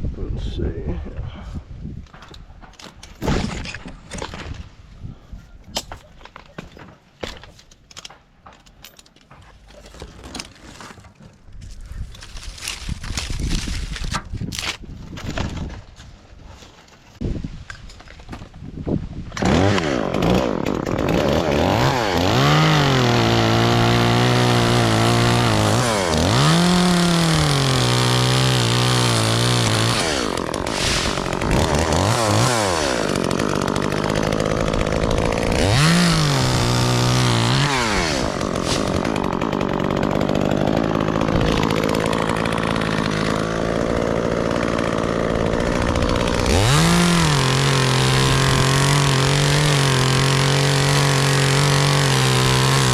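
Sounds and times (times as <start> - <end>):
chainsaw cutting wood: 9.5 - 15.8, 19.3 - 52.9.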